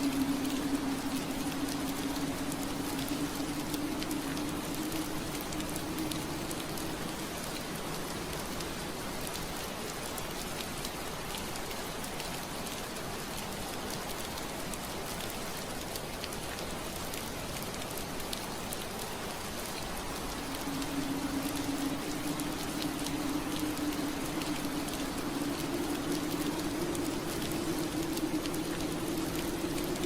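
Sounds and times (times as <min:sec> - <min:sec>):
low hum: 0:00.0 - 0:09.1, 0:19.8 - 0:30.0
rain on window glass: 0:00.0 - 0:30.0.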